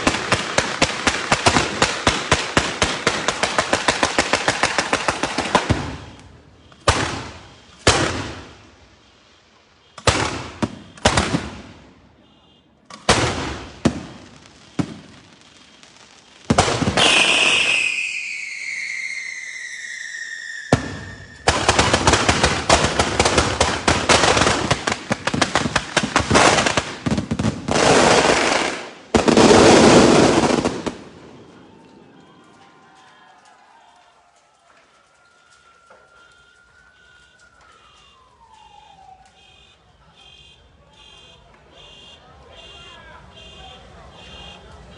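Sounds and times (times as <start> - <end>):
barrage of crackling bangs: 0.0 - 12.1, 12.9 - 18.8, 20.7 - 39.8
fireworks crackling bursts: 0.0 - 44.9
falling firework whistle: 4.6 - 12.6, 13.3 - 24.8, 27.7 - 42.2.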